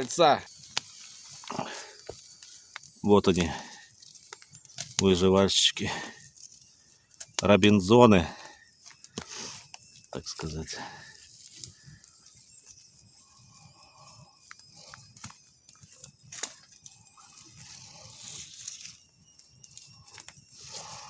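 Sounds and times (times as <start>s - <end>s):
pork fat sizzling: 0.0s - 6.0s
campfire crackling: 0.0s - 21.0s
soft hiss of fire: 0.0s - 21.0s.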